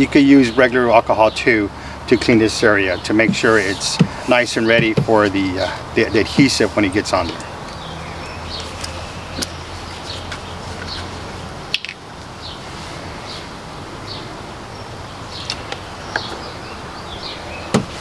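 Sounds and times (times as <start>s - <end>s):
outdoor background hum: 0.0s - 18.0s.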